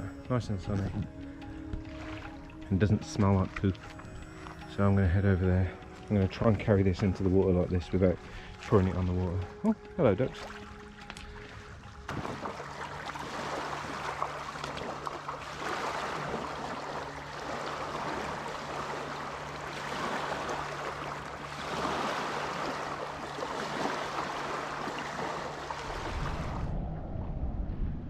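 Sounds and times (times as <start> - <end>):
water splashing around kayak: 0.0 - 26.8.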